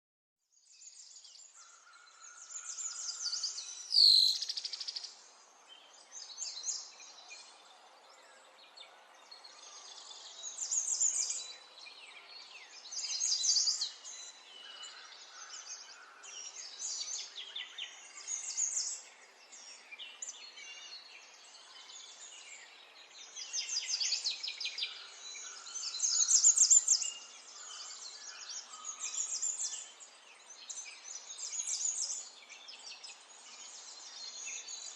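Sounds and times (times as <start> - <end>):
songbird trilling: 2.9 - 4.7.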